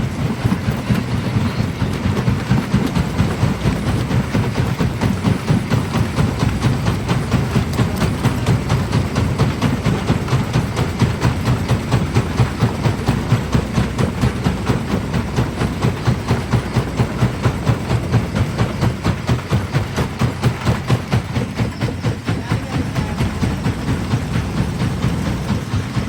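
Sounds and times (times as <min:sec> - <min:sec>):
stone crusher rhythmic pounding: 0:00.0 - 0:26.0.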